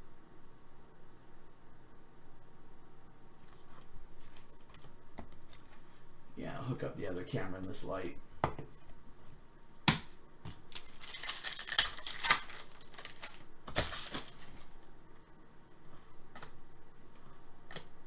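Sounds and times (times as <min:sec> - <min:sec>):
crinkly rustling of cards: 0:03.4 - 0:06.1, 0:10.0 - 0:18.0.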